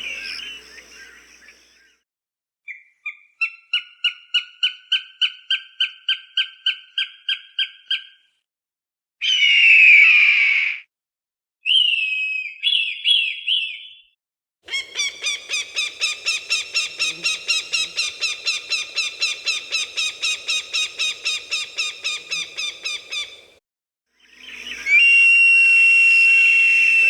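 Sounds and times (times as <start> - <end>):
falcon calling: 0.0 - 1.7, 14.7 - 23.5.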